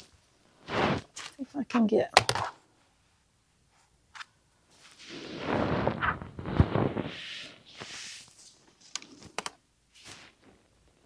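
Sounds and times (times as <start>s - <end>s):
fabric rustling and sliding: 0.0s - 1.4s, 4.7s - 10.8s.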